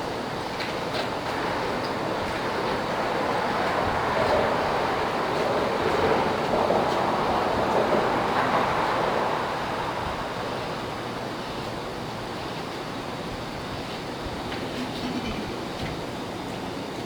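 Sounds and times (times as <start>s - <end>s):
steady rushing noise: 1.3s - 14.4s.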